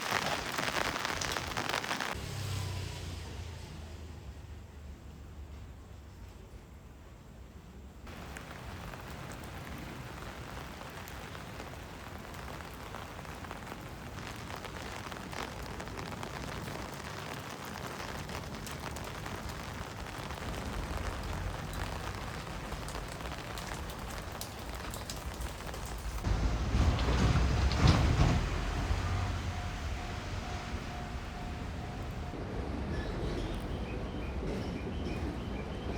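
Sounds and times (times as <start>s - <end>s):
train approaching on track: 26.3s - 35.9s.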